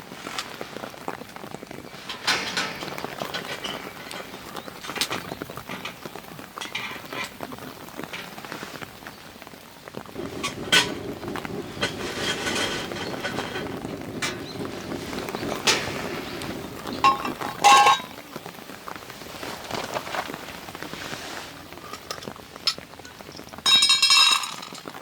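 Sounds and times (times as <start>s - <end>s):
small objects clinking and knocking: 1.8s - 8.4s, 10.2s - 18.2s, 21.8s - 25.0s.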